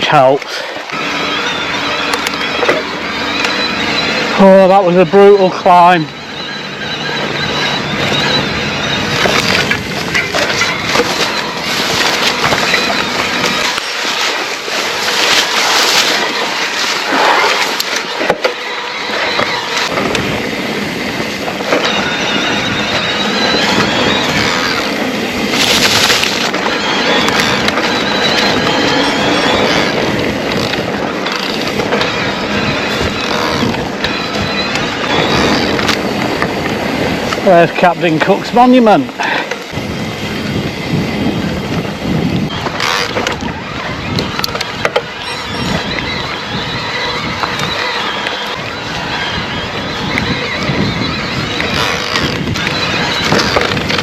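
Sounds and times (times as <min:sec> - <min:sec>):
faint high whine: 0:00.0 - 0:30.3
wind buffeting microphone: 0:00.0 - 0:54.0
bike tyres rattling over ground: 0:07.3 - 0:54.0.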